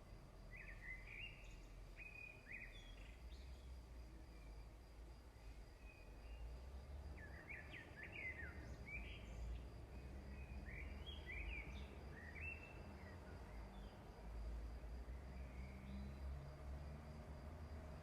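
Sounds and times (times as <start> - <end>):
faint bird chirps: 0.5 - 14.0.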